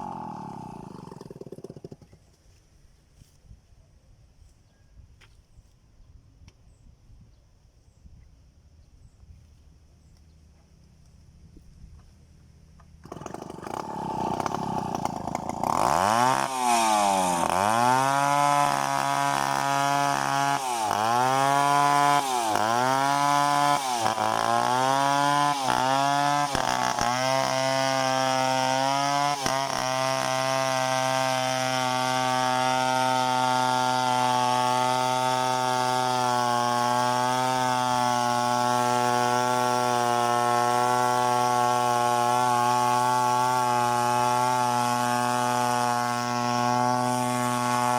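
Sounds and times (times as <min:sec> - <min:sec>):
chainsaw engine revving: 0:00.0 - 0:02.3, 0:13.0 - 0:47.9.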